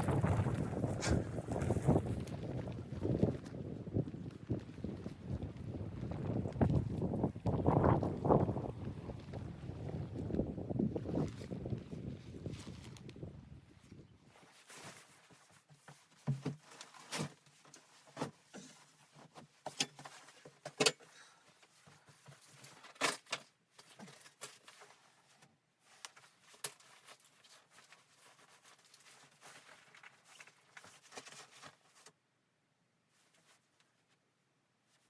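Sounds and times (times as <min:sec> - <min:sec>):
low wind noise: 0:00.0 - 0:14.4.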